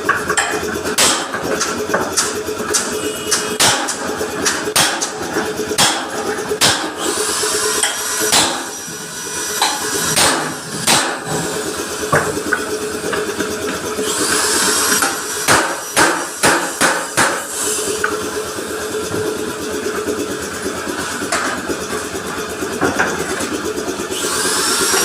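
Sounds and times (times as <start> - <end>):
hammer striking metal bumper: 0.3 - 7.0, 7.8 - 8.8, 9.6 - 12.5, 15.4 - 17.5.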